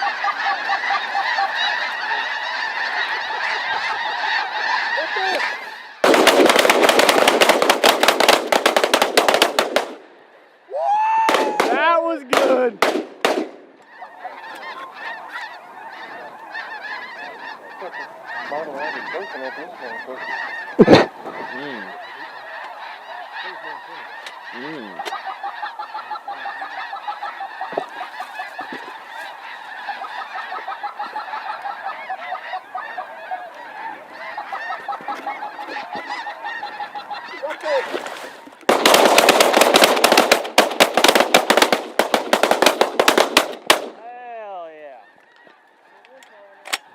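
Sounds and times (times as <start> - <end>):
geese honking chorus: 0.0 - 46.9
shotgun blast: 12.4 - 13.7.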